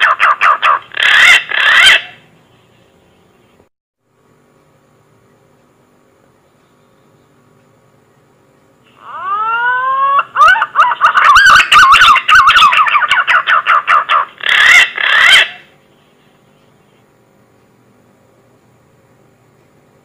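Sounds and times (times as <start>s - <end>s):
pigeon whistling call: 9.0s - 15.6s.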